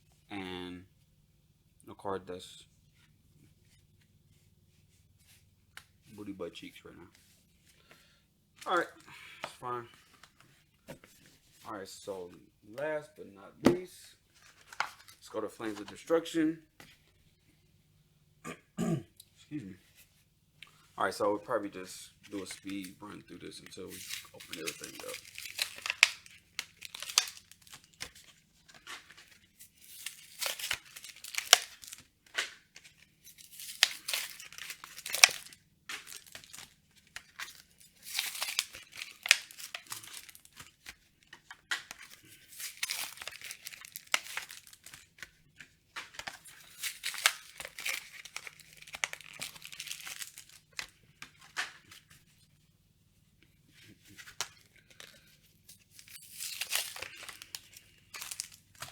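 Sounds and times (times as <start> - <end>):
foil packs tearing and crinkling: 22.3 - 23.0, 23.6 - 45.3, 45.9 - 52.0, 55.9 - 58.9.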